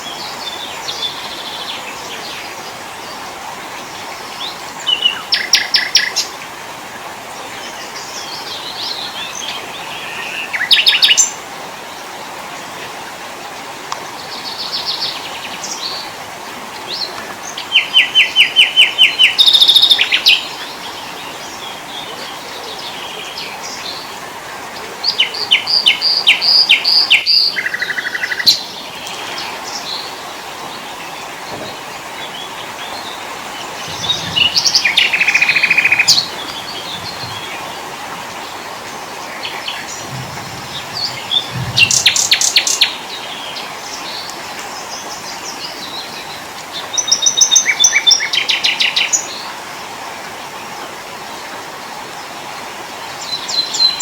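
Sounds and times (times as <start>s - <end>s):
songbirds chirping and trilling: 0.0s - 54.0s
steady background hiss: 0.0s - 54.0s.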